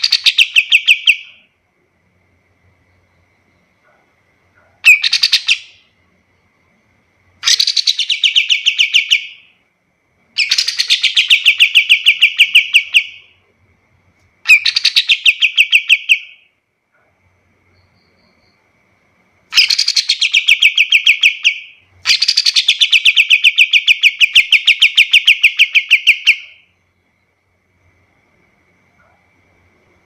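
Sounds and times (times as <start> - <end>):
bird chattering song: 0.0 - 1.5, 4.8 - 5.9, 7.4 - 9.5, 10.4 - 13.4, 14.5 - 16.5, 19.5 - 26.7
faint thin steady tone: 1.3 - 4.9, 5.8 - 7.4, 16.4 - 19.6, 26.6 - 30.0.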